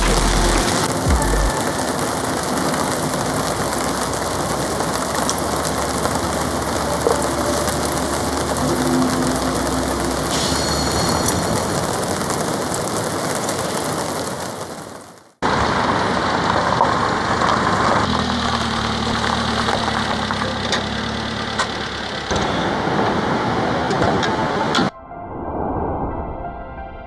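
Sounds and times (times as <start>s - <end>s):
engine idling: 0.0s - 1.6s, 19.0s - 24.5s
heavy rain beating on a tarp: 0.0s - 21.1s, 21.8s - 24.9s.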